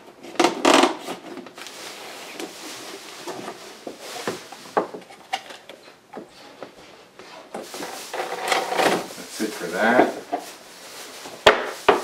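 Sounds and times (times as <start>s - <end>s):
cardboard packaging rustling: 0.9s - 6.0s, 7.6s - 12.0s.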